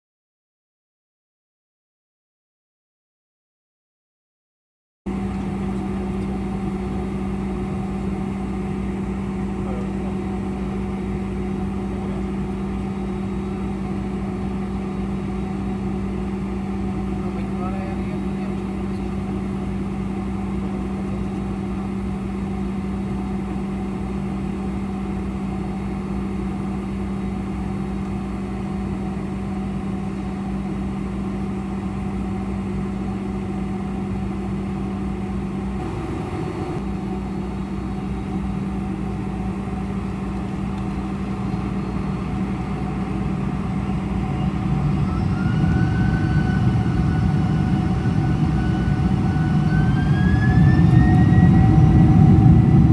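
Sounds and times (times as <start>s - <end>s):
jet engines droning: 5.1s - 52.9s
rising engine whine: 25.5s - 52.9s.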